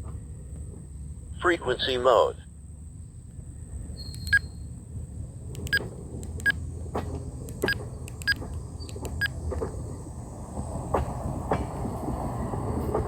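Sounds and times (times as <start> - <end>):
steady low rumble: 0.0 - 12.7
radio scanner keypad beeps: 5.6 - 6.6, 7.5 - 9.4.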